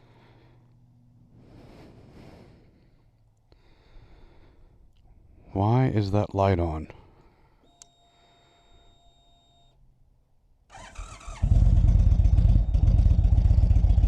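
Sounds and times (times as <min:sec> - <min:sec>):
faint steady hum: 0:00.0 - 0:11.4
faint click: 0:07.6 - 0:08.0
motorcycle engine cranking: 0:10.7 - 0:14.0
motorcycle engine idling: 0:10.7 - 0:14.0.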